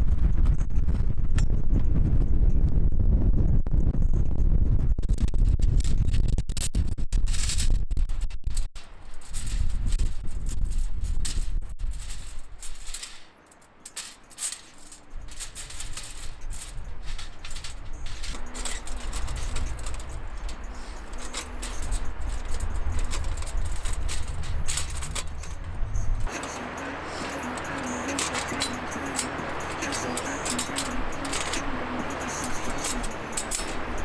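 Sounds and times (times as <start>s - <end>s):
wind buffeting microphone: 0.0s - 13.0s, 15.1s - 34.0s
light metallic clinks and rattles: 8.8s - 34.0s.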